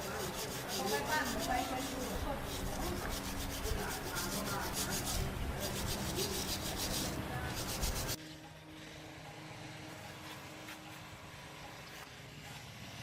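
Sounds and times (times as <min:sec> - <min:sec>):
abrasive rubbing on a surface: 0:00.0 - 0:08.2.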